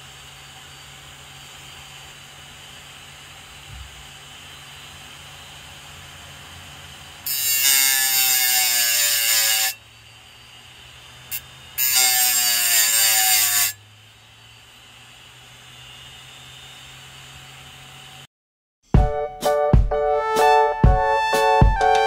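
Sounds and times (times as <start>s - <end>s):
blade grinding on sandpaper disc: 4.4s - 18.2s.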